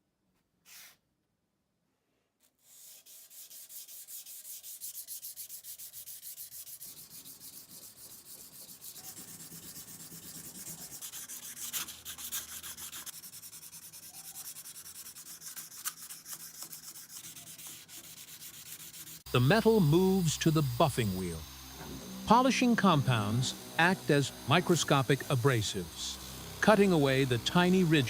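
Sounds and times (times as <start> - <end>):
sandpaper rubbing on steel: 2.6 - 21.4.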